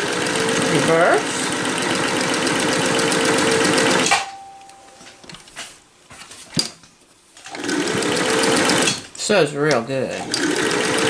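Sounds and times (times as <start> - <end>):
sewing machine running: 0.0 - 4.2, 7.4 - 11.0.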